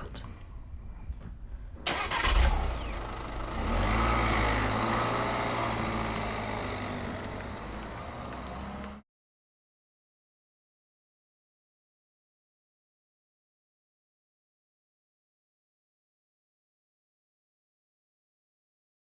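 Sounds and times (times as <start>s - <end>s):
low mechanical rumble: 0.0s - 9.0s.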